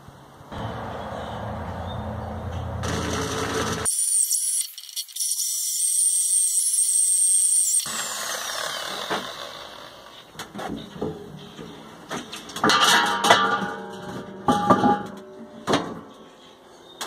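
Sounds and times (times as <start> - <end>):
power tool whining: 2.8 - 10.3.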